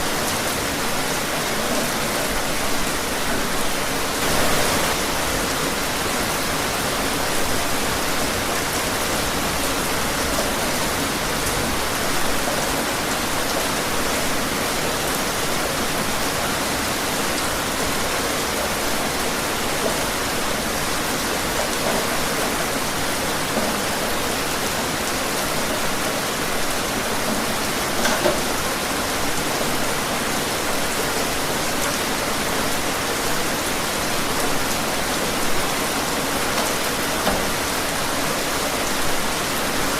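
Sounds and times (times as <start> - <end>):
steady rain hiss: 0.0 - 39.9
raindrop patter: 4.2 - 5.6.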